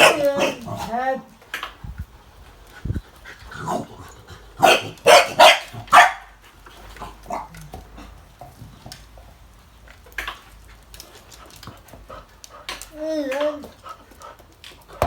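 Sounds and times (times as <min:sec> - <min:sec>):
dog barking: 0:00.0 - 0:00.7, 0:04.6 - 0:06.3.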